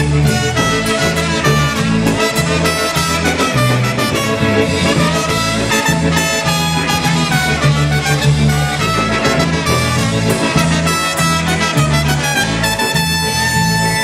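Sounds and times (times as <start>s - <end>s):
bass beat: 0.0s - 14.0s
polka band playing: 0.0s - 14.0s
saxophone: 0.0s - 14.0s.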